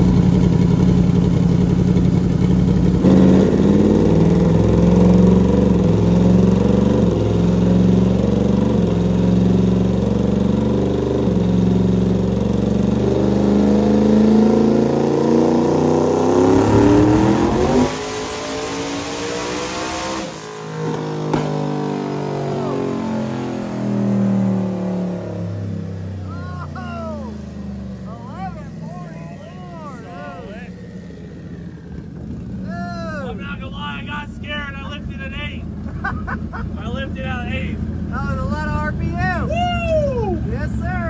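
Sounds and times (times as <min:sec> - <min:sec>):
engine winding down: 0:00.0 - 0:41.0
engine revving at full throttle: 0:02.8 - 0:32.2.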